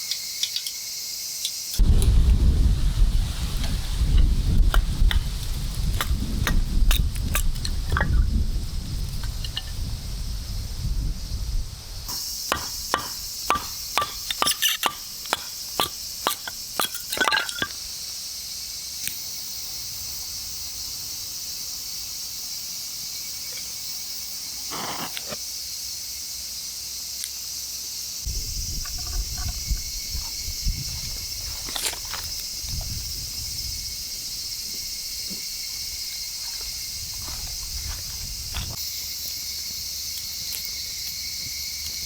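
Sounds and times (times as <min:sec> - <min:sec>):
high-pitched insect chorus: 0:00.0 - 0:42.0
sharp chopping knocks: 0:12.1 - 0:16.6.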